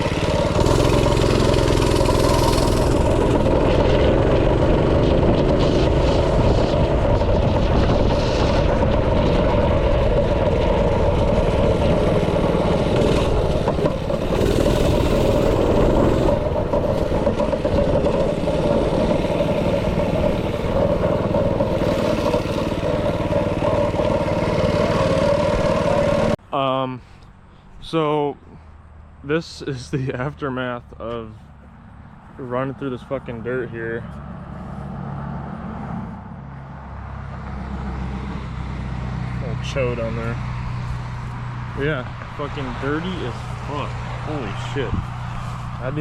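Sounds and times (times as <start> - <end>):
small single-cylinder engine running: 0.0 - 26.4.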